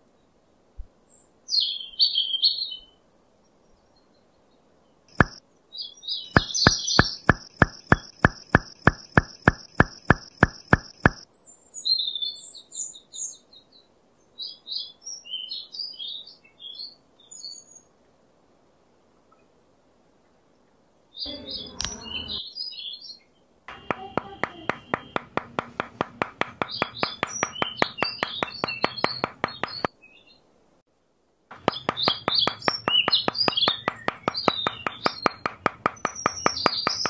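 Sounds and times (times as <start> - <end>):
sharp clicks: 5.1 - 5.4, 6.4 - 11.2, 23.7 - 29.9, 31.5 - 37.0
small birds chirping: 5.1 - 17.9, 21.2 - 30.4, 31.5 - 37.0.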